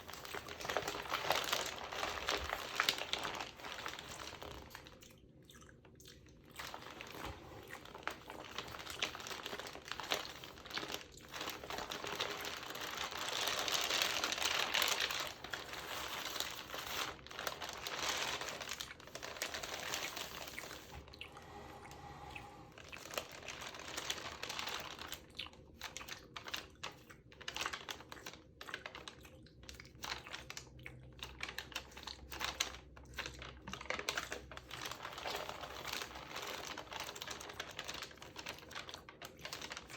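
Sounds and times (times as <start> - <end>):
magazine page crinkling: 0.0 - 5.0, 6.6 - 22.2, 22.8 - 25.2, 32.3 - 39.9.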